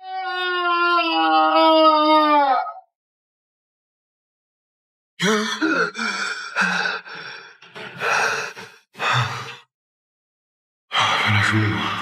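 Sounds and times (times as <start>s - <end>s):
man gasping and panting: 5.2s - 9.6s.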